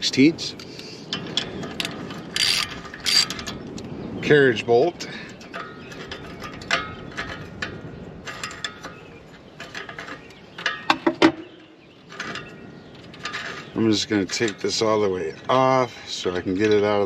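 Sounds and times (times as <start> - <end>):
ratchet wrench clicking: 1.8 - 3.3.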